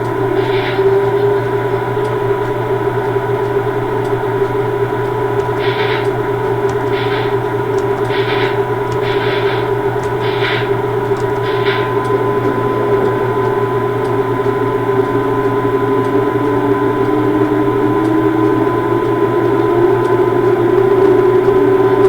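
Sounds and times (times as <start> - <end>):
electrical hum: 0.0 - 22.0
short hissing puffs: 5.6 - 6.2, 6.9 - 7.4, 8.1 - 10.8.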